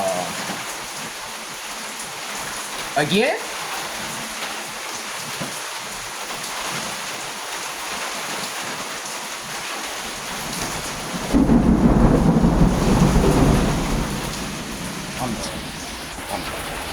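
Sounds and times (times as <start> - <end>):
steady rain: 0.0 - 16.9
low rumble of thunder: 10.4 - 16.9.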